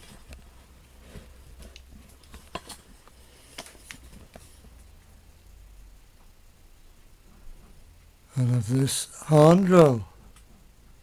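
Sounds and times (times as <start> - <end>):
faint low hum: 0.0 - 11.0
items clicking and tapping: 1.1 - 4.8.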